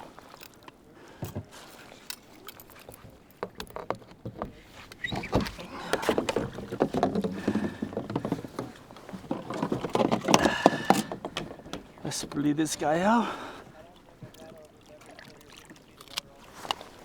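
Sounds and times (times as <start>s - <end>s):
knocks and clicks of gear: 0.3s - 12.9s.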